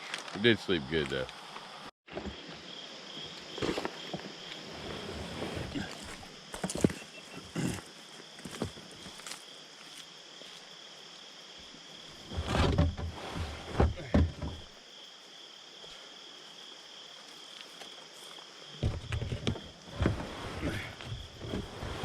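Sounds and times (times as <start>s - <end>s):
insects buzzing: 0.4s - 22.0s
knocks and thumps: 12.3s - 14.7s, 18.8s - 22.0s.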